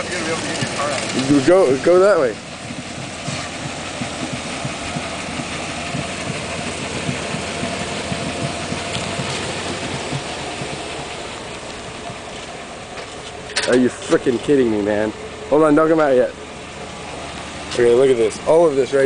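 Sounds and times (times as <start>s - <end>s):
rapid irregular knocking: 0.0s - 13.0s
damaged car engine running: 0.0s - 19.0s.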